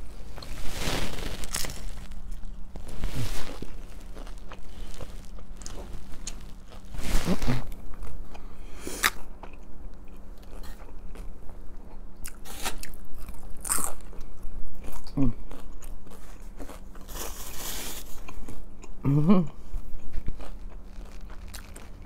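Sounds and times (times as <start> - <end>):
chewing and crunching food: 0.1 - 22.0.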